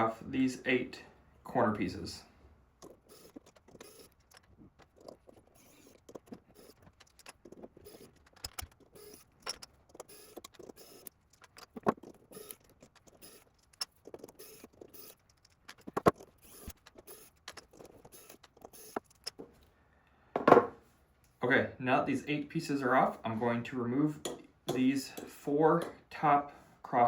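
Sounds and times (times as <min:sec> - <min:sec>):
hand tools clicking and rattling: 0:02.8 - 0:19.6.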